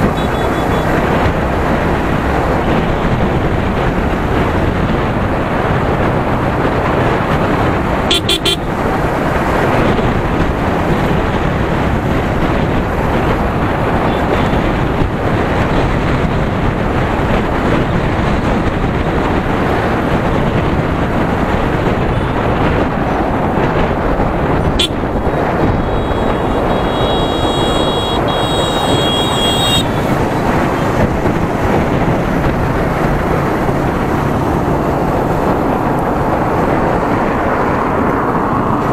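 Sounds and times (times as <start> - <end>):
motorcycle horn: 0.0 - 1.0, 8.1 - 8.7, 24.8 - 30.2
motorcycle engine: 0.0 - 36.8
wind rush: 0.0 - 38.9.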